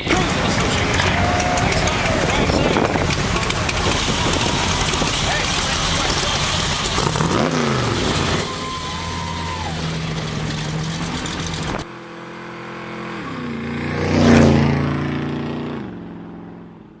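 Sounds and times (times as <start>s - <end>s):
car engine idling: 0.0s - 12.1s
car engines driving off: 0.0s - 17.0s
car passing: 0.0s - 17.0s.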